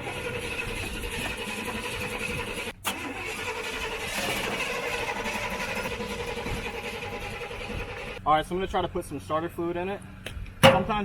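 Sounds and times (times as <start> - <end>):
engine cranking by starter: 0.0 - 8.2.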